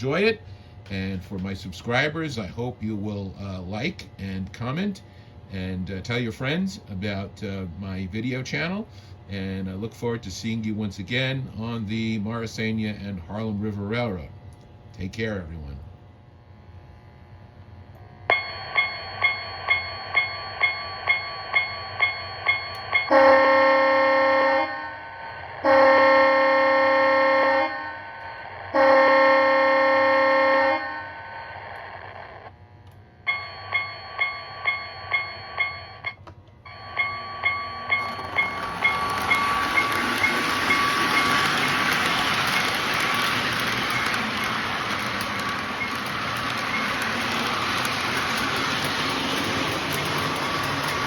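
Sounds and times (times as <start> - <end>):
electronic bell dinging: 18.3 - 23.2, 33.3 - 41.8
train horn blasts: 23.1 - 24.9, 25.6 - 27.9, 28.7 - 31.0
model train running noise: 36.7 - 51.0.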